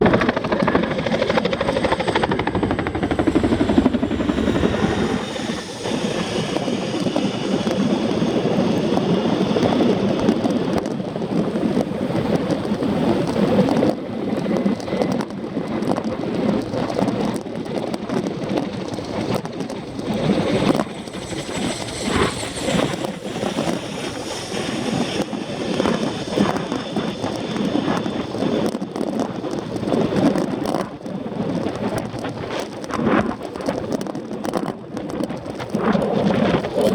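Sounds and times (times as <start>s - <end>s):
helicopter rotor beat: 0.0s - 36.9s
faint high whine: 1.4s - 10.3s, 19.8s - 28.5s.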